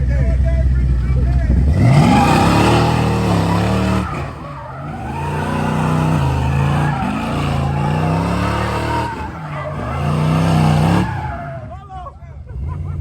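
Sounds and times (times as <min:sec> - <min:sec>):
car engine revving hard: 0:01.4 - 0:11.8
tyres squealing: 0:01.7 - 0:11.9.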